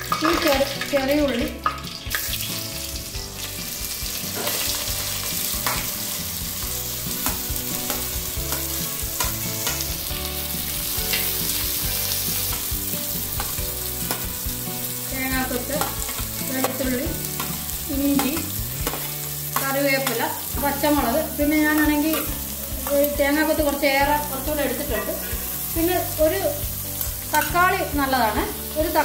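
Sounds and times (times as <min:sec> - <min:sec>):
food sizzling in hot oil: 0:00.0 - 0:29.0
metal spoon scraping and tapping pan: 0:05.6 - 0:06.0, 0:07.2 - 0:10.0, 0:11.0 - 0:11.4, 0:13.3 - 0:14.4, 0:15.6 - 0:24.1.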